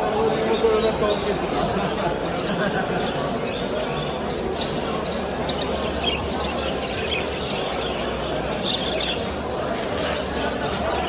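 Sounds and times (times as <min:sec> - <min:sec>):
market noise: 0:00.0 - 0:11.0
small birds chirping: 0:00.6 - 0:10.2.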